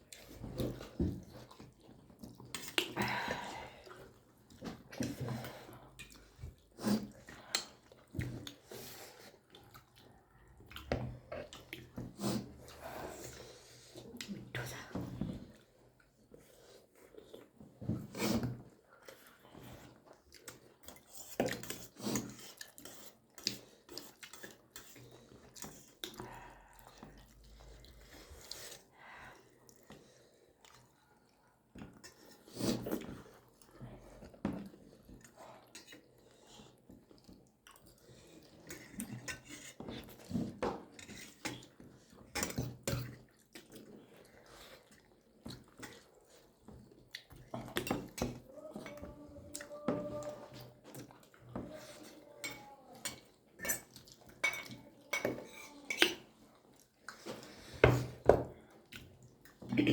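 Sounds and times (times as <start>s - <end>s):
chewing: 0.0s - 3.1s, 3.8s - 59.9s
cutlery clinking on plates: 52.5s - 56.3s.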